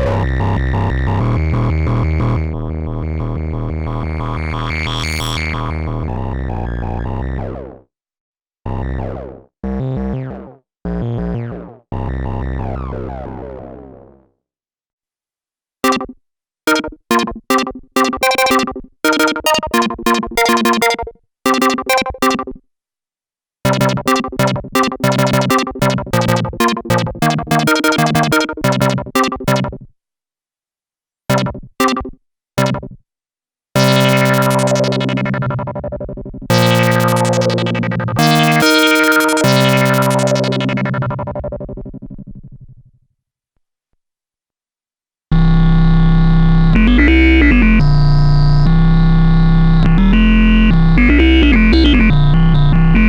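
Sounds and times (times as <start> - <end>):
synthesizer plucky notes: 0.0 - 6.1, 15.8 - 22.5, 23.7 - 29.8, 31.3 - 32.9, 33.8 - 41.5, 46.7 - 48.5, 49.8 - 53.0.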